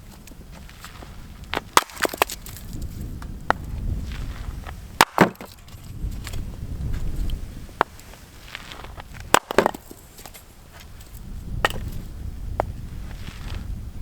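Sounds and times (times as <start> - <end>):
firewood splitting cracks: 0.8 - 6.4, 7.8 - 10.4.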